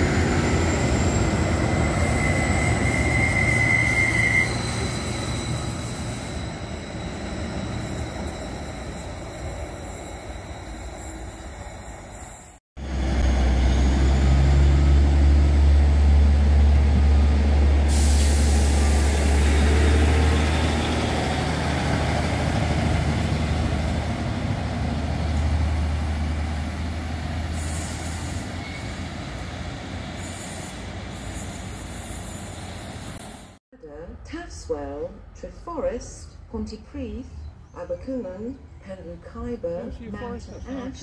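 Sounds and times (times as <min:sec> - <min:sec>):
train deep drone: 0:12.8 - 0:27.6
air brake hiss: 0:17.9 - 0:19.4.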